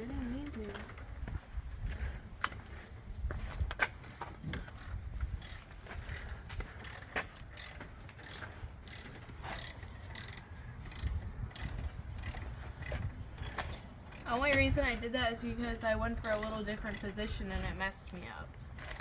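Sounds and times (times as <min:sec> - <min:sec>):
socket ratchet clicking: 0:04.8 - 0:17.8.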